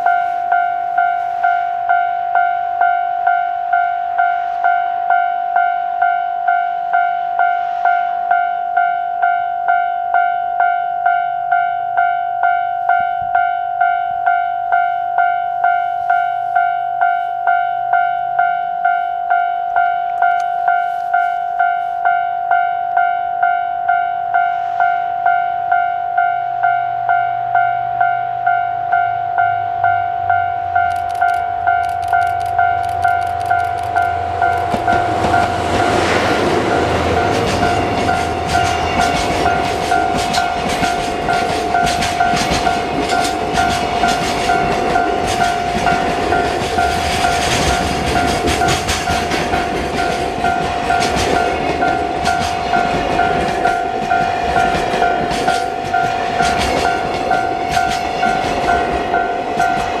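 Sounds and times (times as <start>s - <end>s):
level crossing bell dinging: 0.0s - 35.6s
diesel locomotive passing: 0.0s - 60.0s
wagons clattering over rail joints: 32.0s - 60.0s.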